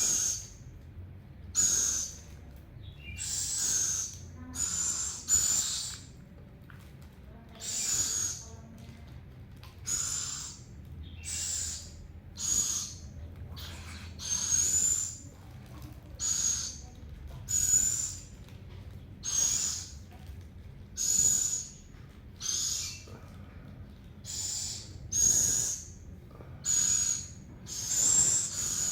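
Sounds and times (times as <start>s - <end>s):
owl hissing begging calls: 0.0s - 0.6s, 1.6s - 2.3s, 3.2s - 6.1s, 7.6s - 8.4s, 9.9s - 13.0s, 13.6s - 15.2s, 19.2s - 19.9s, 21.0s - 21.8s, 22.4s - 23.1s, 24.3s - 26.0s, 26.6s - 28.9s.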